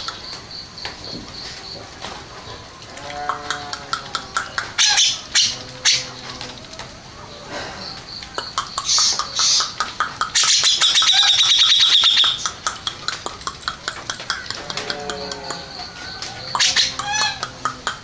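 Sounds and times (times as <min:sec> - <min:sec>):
bulbul singing chirps and trills: 0:07.9 - 0:18.0.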